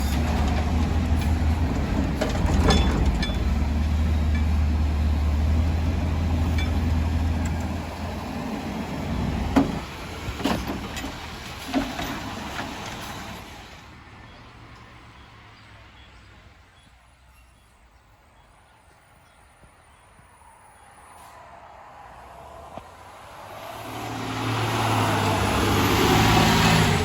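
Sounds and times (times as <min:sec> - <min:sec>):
garbage truck engine droning: 0:00.0 - 0:13.8.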